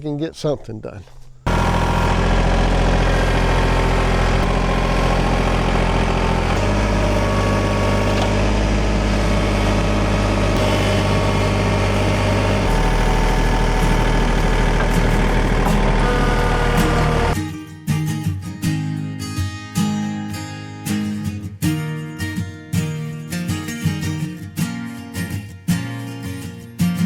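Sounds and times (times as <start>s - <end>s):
tractor engine running: 0.0s - 17.4s.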